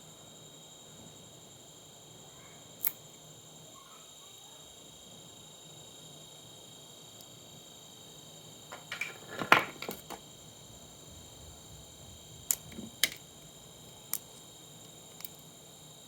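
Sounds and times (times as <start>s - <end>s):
clicks and knocks of tools: 8.7s - 10.2s.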